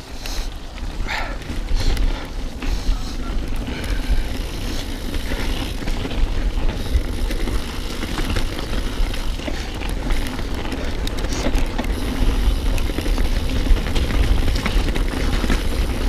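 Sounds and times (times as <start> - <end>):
bike clicking and rattling: 0.0 - 16.0
tyres running over mud: 0.0 - 16.0
wind rumble on microphone: 0.0 - 16.0.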